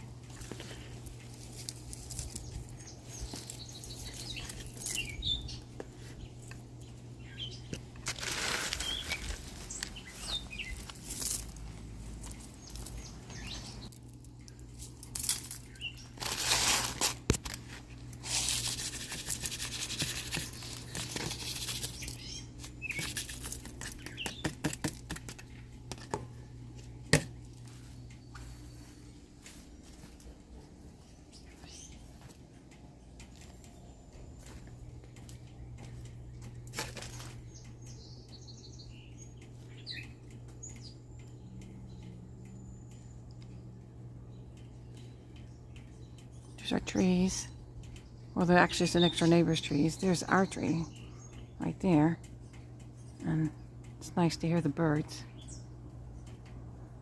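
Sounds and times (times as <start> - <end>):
rustling and crinkling: 0.0 - 7.0, 7.6 - 37.5
low steady hum: 0.0 - 57.0
bird chirps: 2.4 - 7.8, 8.8 - 10.9, 12.6 - 13.9, 20.1 - 24.6, 37.3 - 43.6.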